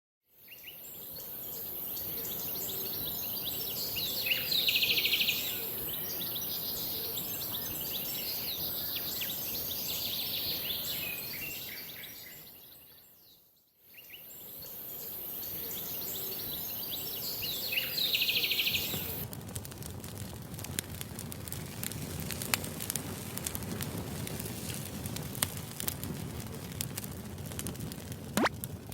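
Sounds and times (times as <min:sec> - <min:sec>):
songbirds chirping and calling: 0:00.5 - 0:19.2
steady hiss: 0:14.9 - 0:19.2.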